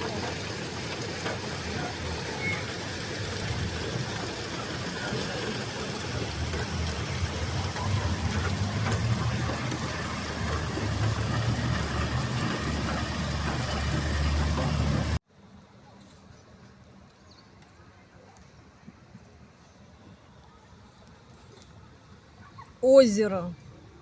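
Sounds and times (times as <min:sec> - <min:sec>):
vehicle engine humming: 0:00.0 - 0:15.2
outdoor noise: 0:00.0 - 0:24.0.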